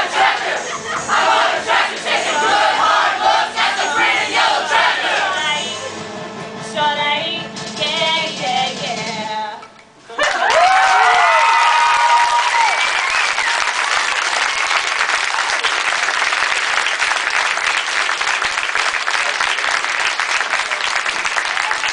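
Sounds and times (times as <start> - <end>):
shouts and whoops: 10.2 - 13.6
audience applauding: 10.2 - 21.9.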